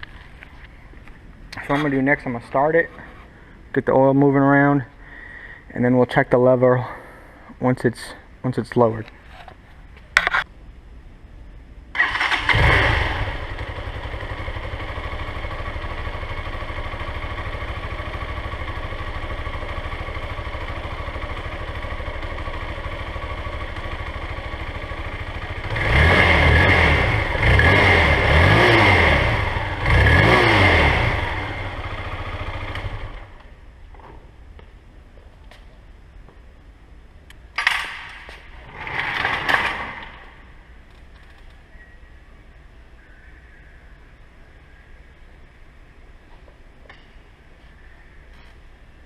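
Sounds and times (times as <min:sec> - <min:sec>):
motorcycle engine idling and revving: 0:11.9 - 0:33.6, 0:37.9 - 0:41.5.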